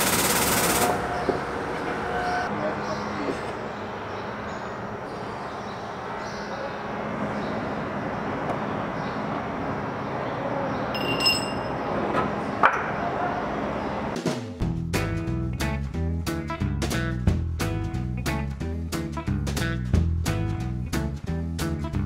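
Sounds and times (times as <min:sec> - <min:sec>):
metallic ping: 0:11.0 - 0:11.8.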